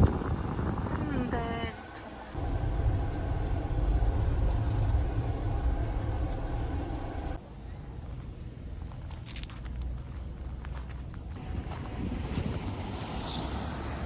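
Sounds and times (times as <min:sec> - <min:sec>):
car interior rumble: 0:02.3 - 0:07.4.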